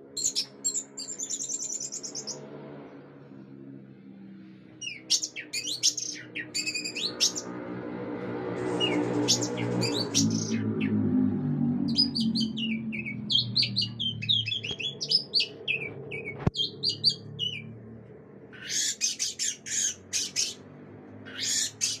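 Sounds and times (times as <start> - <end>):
thrush whistled song: 0.2 - 2.5, 4.8 - 7.5, 8.7 - 11.1, 11.8 - 17.8
bird harsh rasping notes: 4.8 - 7.6, 8.4 - 17.8, 18.5 - 20.6, 21.2 - 22.0.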